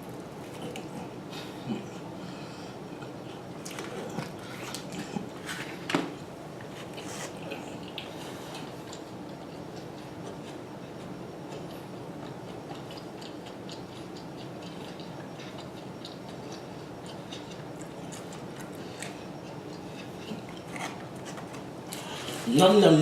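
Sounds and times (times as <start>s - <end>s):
person chewing food: 6.6s - 22.4s.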